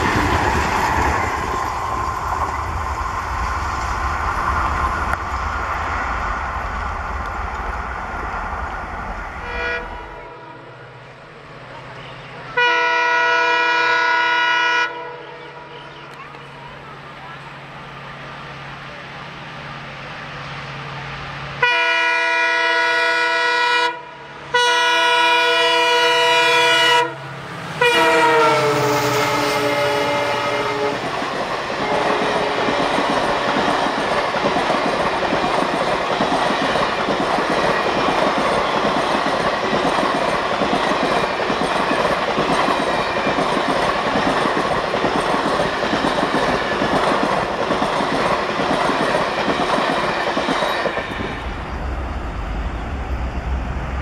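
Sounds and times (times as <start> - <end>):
locomotive horn blasts: 9.4 - 10.7, 12.5 - 15.8, 21.6 - 31.1, 31.8 - 32.8
wheels clacking over rail joints: 30.0 - 51.5.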